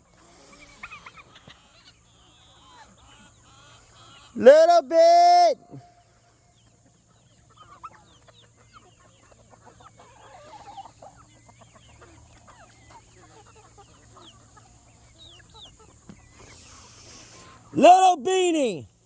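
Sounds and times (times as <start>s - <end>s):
chickens clucking: 0.0s - 4.7s, 5.6s - 17.9s.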